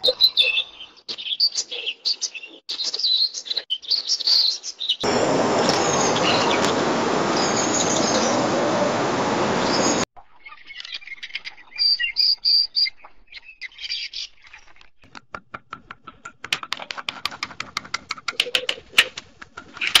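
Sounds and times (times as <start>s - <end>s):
sandpiper peep calls: 5.0s - 10.0s
rail sharp kek calls: 5.0s - 10.1s.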